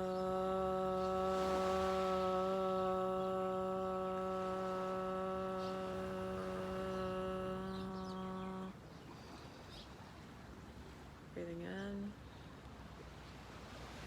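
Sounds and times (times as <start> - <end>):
person chanting a held note: 0.0 - 8.7
faint background hiss: 0.0 - 14.0.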